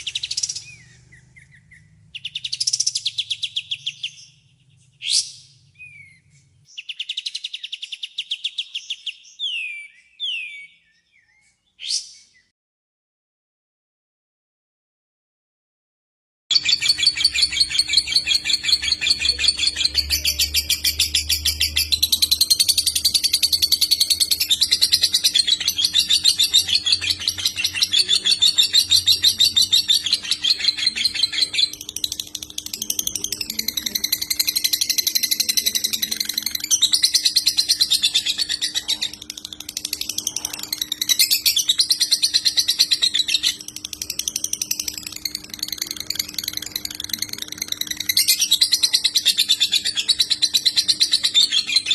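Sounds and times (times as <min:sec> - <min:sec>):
songbird rapid trilled singing: 0:00.0 - 0:05.2, 0:16.5 - 0:51.9.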